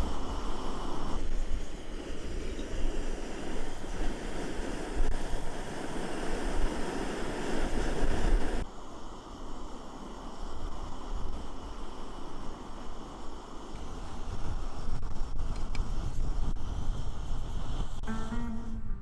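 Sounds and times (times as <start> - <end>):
surf washing: 0.0 - 8.6
wind buffeting the microphone: 0.0 - 8.6, 9.6 - 19.0.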